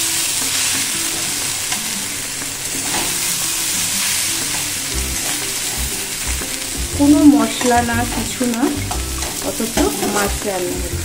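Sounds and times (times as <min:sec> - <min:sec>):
vegetables sizzling in a wok: 0:00.0 - 0:11.0
metal spatula scraping a pan: 0:00.3 - 0:06.7.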